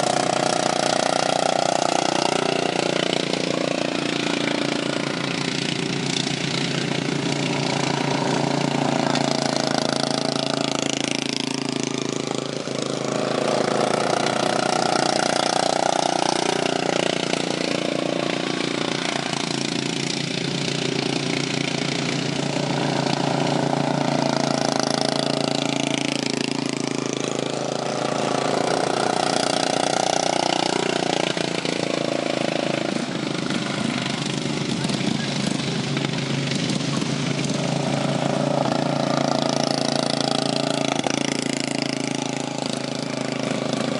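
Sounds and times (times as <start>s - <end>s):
racing lawn mower engines: 0.0s - 43.9s.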